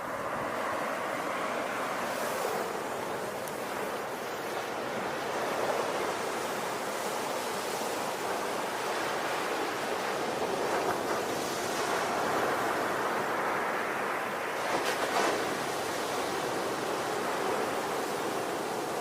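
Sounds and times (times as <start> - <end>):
ocean waves breaking on shore: 0.0 - 19.0.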